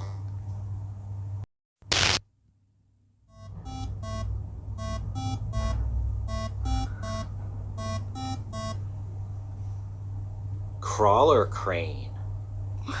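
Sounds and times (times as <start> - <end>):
steady low hum: 0.0 - 13.0
short electronic beeps: 3.3 - 8.8.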